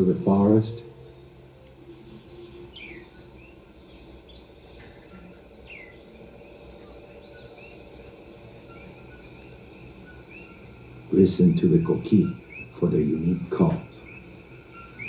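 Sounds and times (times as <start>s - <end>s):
insects droning: 0.0s - 15.0s
bird chirps and whistles: 2.7s - 12.8s, 13.4s - 15.0s.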